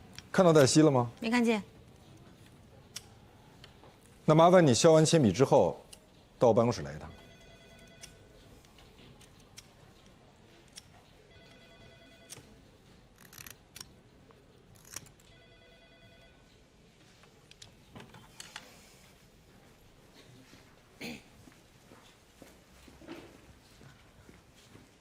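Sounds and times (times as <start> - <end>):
telephone ringing faintly: 6.7 - 8.6, 11.0 - 13.0, 15.1 - 17.0.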